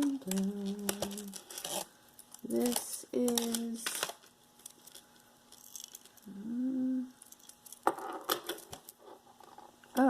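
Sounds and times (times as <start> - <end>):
person humming: 0.0 - 1.4, 2.4 - 4.0, 6.2 - 7.2.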